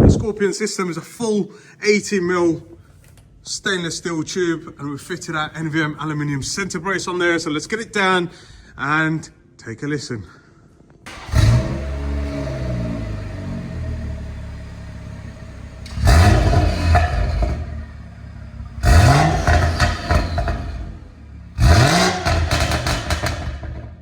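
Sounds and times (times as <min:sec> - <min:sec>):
car engine starting and revving: 0:11.1 - 0:24.0.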